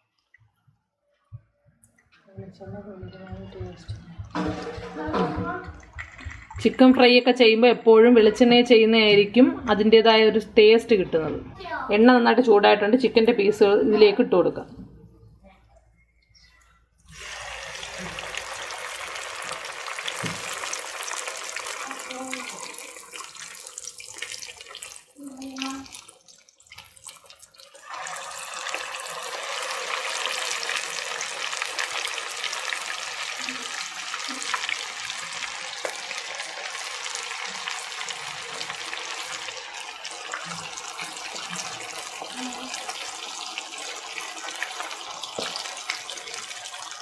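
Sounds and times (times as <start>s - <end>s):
chicken sizzling in oil: 17.1s - 47.0s.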